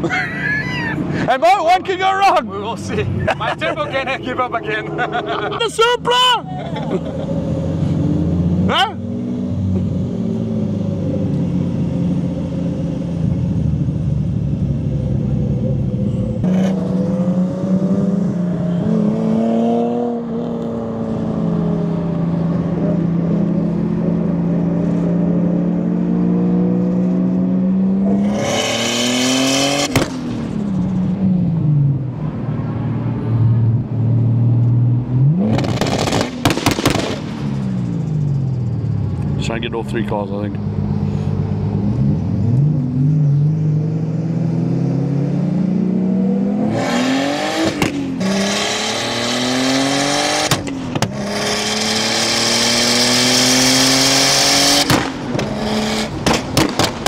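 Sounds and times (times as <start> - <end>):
race car engine revving: 6.7 - 31.2, 34.2 - 38.8, 39.4 - 57.0
sharp exhaust cracks: 35.5 - 38.3.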